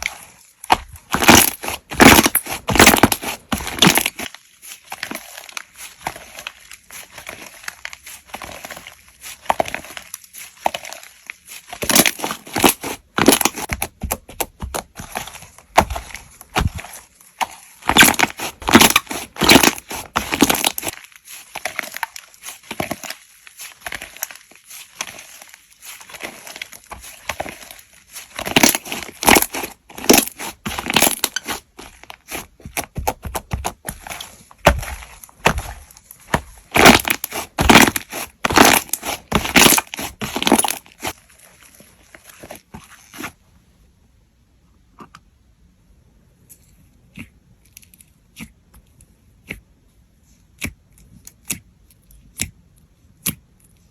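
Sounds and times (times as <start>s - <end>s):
slime squishing: 0.0s - 43.6s, 46.7s - 53.9s.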